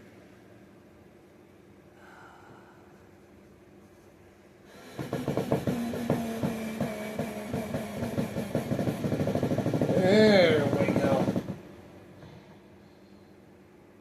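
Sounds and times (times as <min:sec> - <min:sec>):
power driver motor: 0:04.7 - 0:11.6
rapid rattling knocks: 0:04.8 - 0:11.7.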